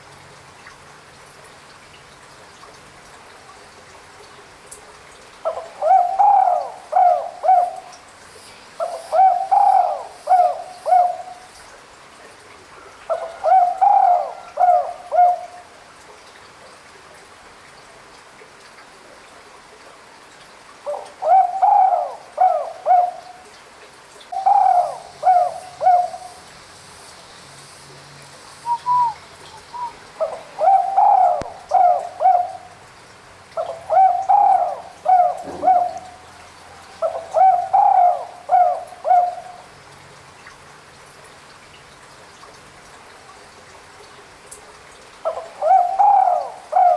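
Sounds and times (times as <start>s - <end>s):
dove cooing: 5.5s - 8.0s, 8.8s - 11.5s, 13.1s - 15.6s, 20.9s - 23.3s, 24.3s - 26.5s, 28.6s - 32.8s, 33.6s - 39.6s, 45.3s - 46.9s.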